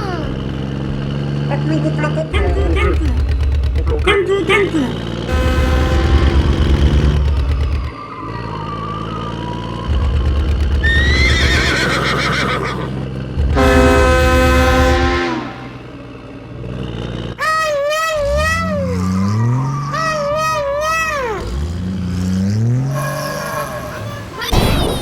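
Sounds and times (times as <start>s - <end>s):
small engine chugging: 0.0s - 24.5s
horn blast: 5.3s - 7.6s, 13.4s - 16.0s, 17.4s - 22.1s
horse whinny: 10.8s - 13.0s.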